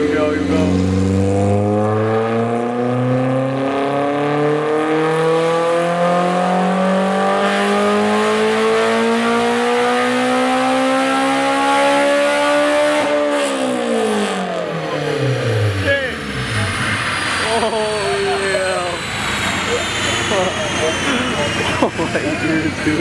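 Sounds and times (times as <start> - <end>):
car engine revving at full throttle: 0.0 - 23.0.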